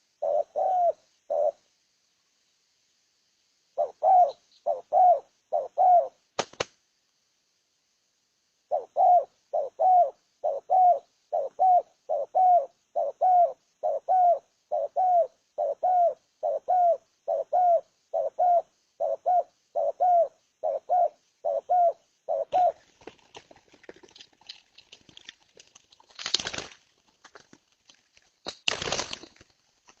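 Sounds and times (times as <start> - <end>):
dove cooing: 0.0 - 1.7, 3.8 - 6.2, 8.7 - 23.4
soft clicks and rustles: 22.8 - 30.0.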